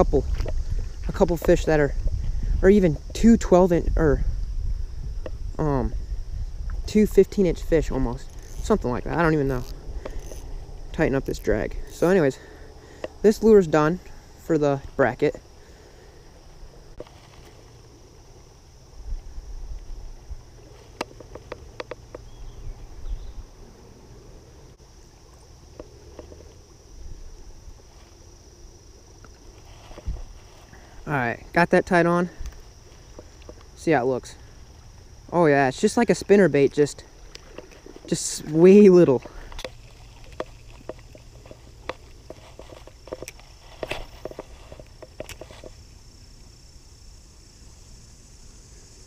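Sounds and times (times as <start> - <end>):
wind rumble on microphone: 0.0 - 11.9, 18.9 - 24.4, 29.9 - 30.5
fishing line handling clicks: 8.1 - 12.2, 20.9 - 22.3, 37.2 - 45.8.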